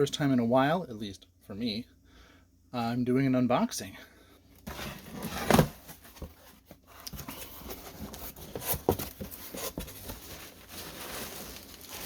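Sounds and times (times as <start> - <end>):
cardboard box rustling and scraping: 4.6 - 12.0.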